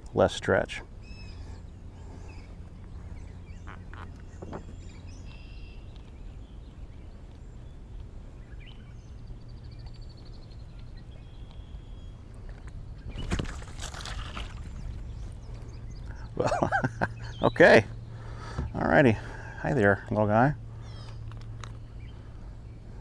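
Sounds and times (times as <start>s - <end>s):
low outdoor rumble: 0.0s - 23.0s
birds chirping and calling: 0.2s - 23.0s
bird trill: 1.0s - 6.6s.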